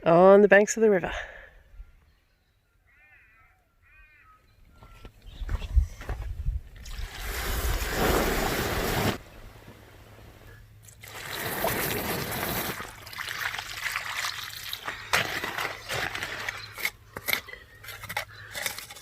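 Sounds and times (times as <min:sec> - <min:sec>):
water splashing and trickling: 0:06.8 - 0:09.2, 0:10.8 - 0:16.9.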